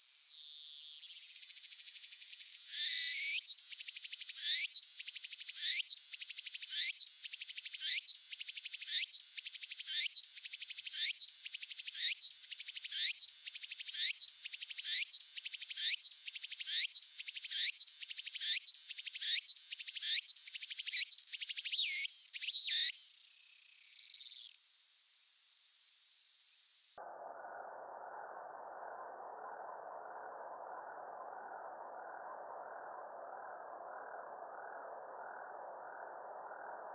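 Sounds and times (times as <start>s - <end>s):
slowed-down cicada buzzing: 0.0s - 27.0s.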